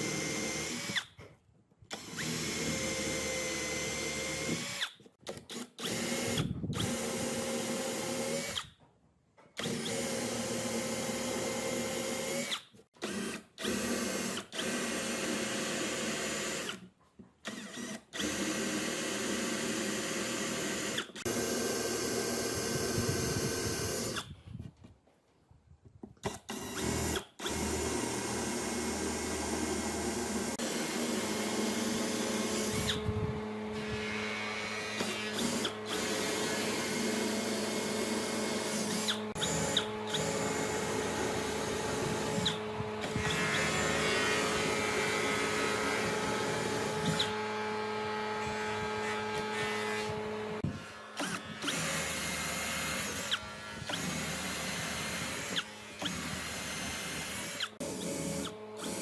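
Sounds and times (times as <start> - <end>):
power tool running: 17.5 - 24.3, 26.3 - 59.0.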